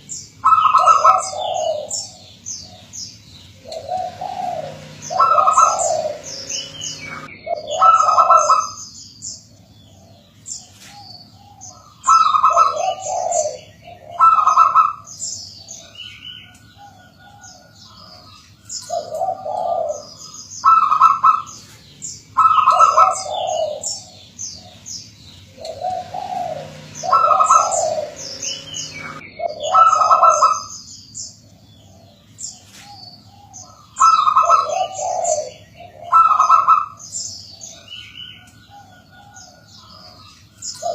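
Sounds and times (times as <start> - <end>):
dove cooing: 0.0 - 8.8, 9.5 - 30.8, 31.4 - 40.9
high rapid bird chirping: 0.0 - 9.6, 20.0 - 31.4.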